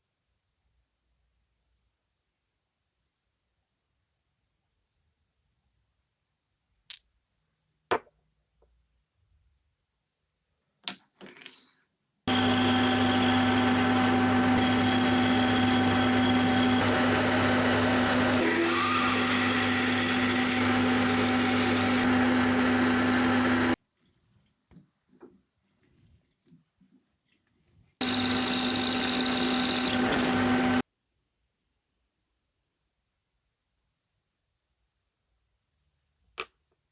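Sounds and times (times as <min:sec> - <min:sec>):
electric machine humming: 0:12.3 - 0:23.8, 0:28.0 - 0:30.8.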